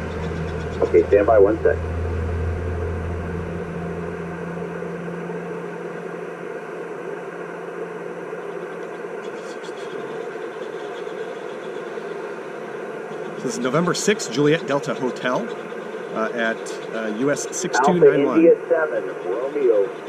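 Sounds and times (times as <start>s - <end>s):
low hum: 0.0s - 20.0s
radio static hiss: 0.8s - 1.8s, 5.4s - 11.1s, 11.8s - 20.0s.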